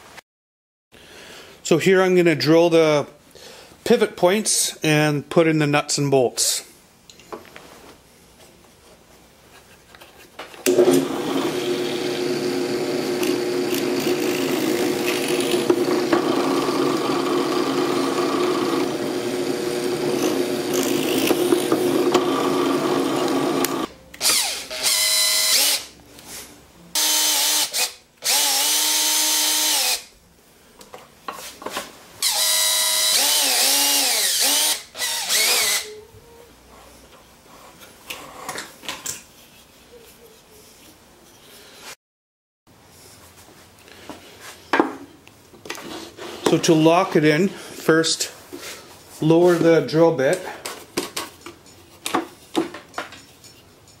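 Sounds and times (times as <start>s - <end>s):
drill press motor running: 10.7s - 25.8s
power drill running: 10.7s - 25.9s, 27.0s - 30.1s, 32.2s - 35.9s.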